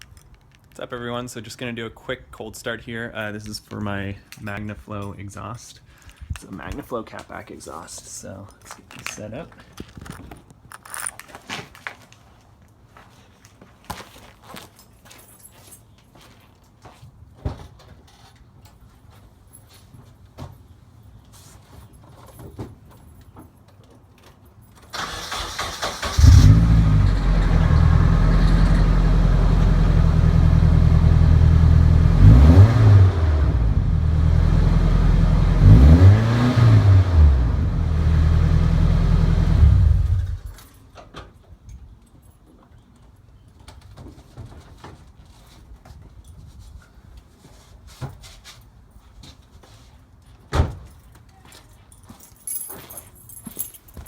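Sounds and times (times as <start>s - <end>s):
starter motor cranking: 25.0s - 28.9s
car engine idling and revving: 25.8s - 40.6s.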